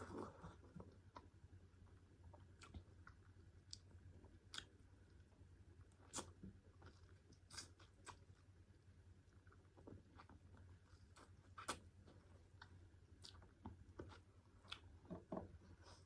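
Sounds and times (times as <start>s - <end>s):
person chewing: 10.1s - 14.9s.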